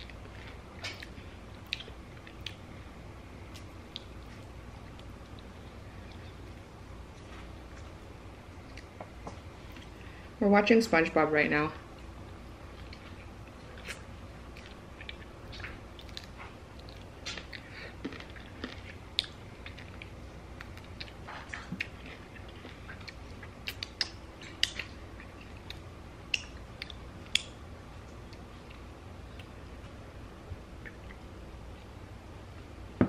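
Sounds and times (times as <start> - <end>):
chewing chicken wings: 12.7 - 27.6.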